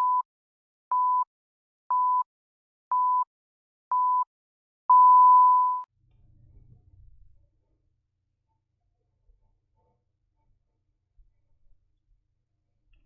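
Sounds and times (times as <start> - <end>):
long electronic beep: 4.9 - 5.9
short electronic beeps: 4.9 - 5.9.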